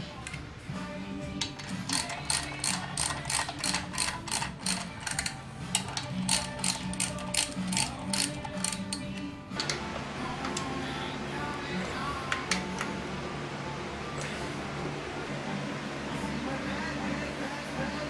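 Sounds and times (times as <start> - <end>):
lathe low hum: 0.0 - 18.0
lathe gearing clicking: 1.3 - 13.0.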